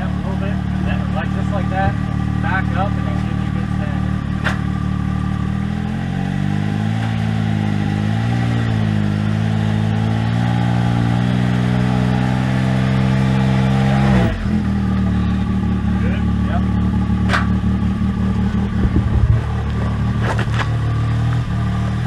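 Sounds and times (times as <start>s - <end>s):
utility vehicle engine revving: 0.0s - 22.0s.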